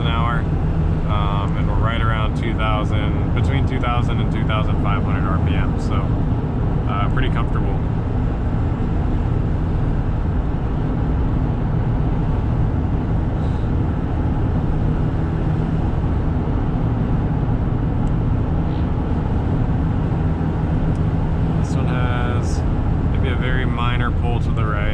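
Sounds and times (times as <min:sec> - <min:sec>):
diesel engine running: 0:00.0 - 0:24.9
road and wind noise: 0:00.0 - 0:24.9.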